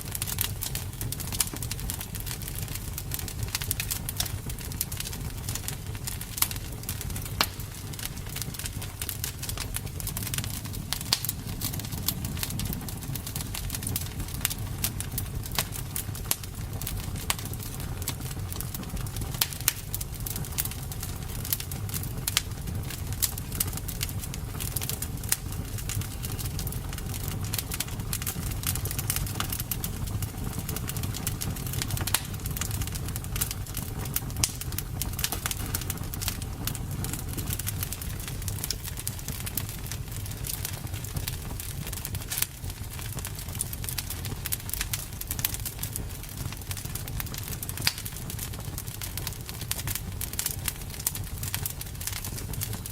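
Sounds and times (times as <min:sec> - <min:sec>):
campfire crackling: 0:00.0 - 0:52.9.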